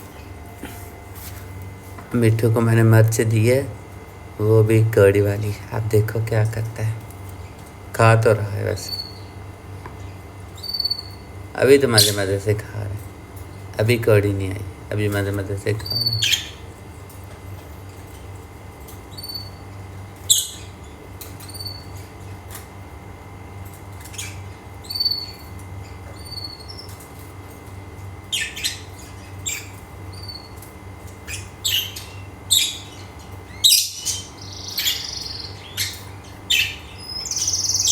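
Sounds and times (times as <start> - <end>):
low background hum: 0.0 - 37.9
parrot chirping and squawking: 15.8 - 16.7, 20.2 - 22.0, 24.0 - 25.5, 28.3 - 37.9.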